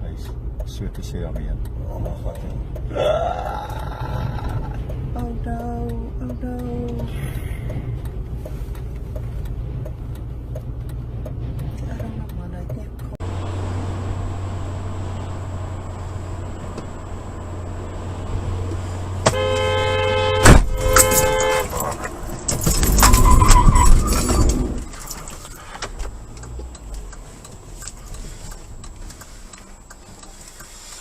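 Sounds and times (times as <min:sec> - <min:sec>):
road noise hum: 0:00.0 - 0:31.0
car horn two tones: 0:19.2 - 0:22.0
vehicle collision crash: 0:20.4 - 0:25.9.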